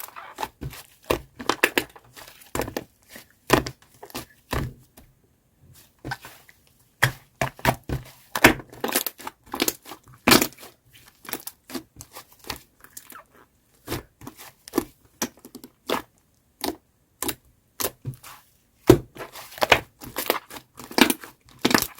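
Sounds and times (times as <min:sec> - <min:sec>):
slime crackling and popping: 0:19.6 - 0:21.9.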